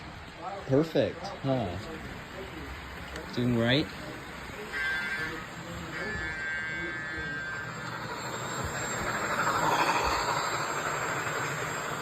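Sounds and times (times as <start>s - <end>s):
model train rolling rumble: 0.0s - 12.0s
thin high whine: 1.7s - 12.0s.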